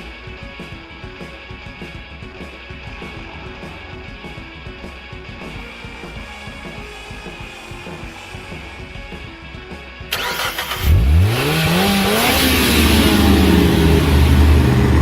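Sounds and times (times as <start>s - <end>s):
engine revving: 10.1s - 15.0s.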